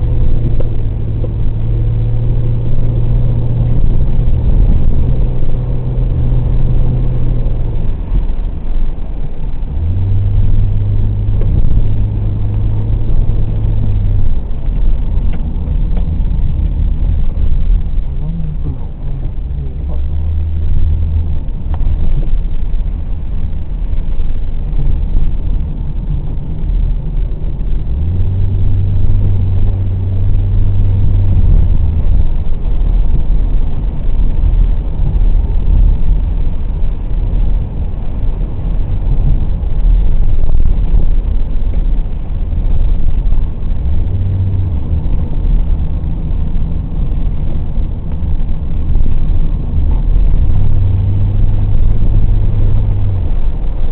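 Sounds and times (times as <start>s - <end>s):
car engine running: 0.0s - 53.9s
road and wind noise: 0.0s - 53.9s.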